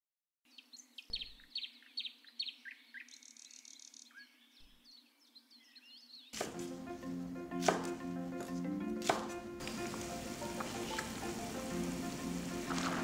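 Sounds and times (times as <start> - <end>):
small birds chirping: 0.5 - 6.4.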